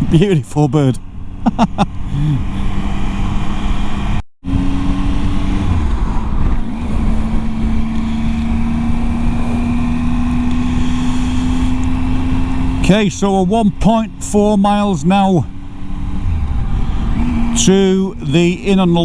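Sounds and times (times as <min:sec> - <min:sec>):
motorcycle engine running: 0:01.0 - 0:19.0
wind rush: 0:04.6 - 0:12.6, 0:15.7 - 0:17.6.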